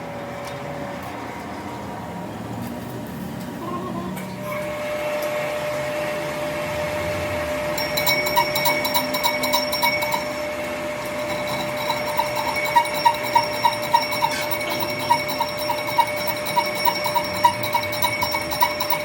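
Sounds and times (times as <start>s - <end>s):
metalworking machinery whining: 4.2s - 19.0s
regular metallic ticks: 7.8s - 10.4s, 11.0s - 19.0s.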